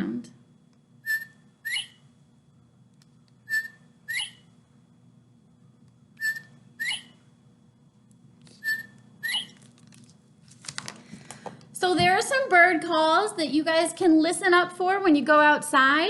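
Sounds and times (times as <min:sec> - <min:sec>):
two-note rising bird whistle: 0:01.0 - 0:02.0, 0:03.5 - 0:04.4, 0:06.2 - 0:07.1, 0:08.6 - 0:09.5.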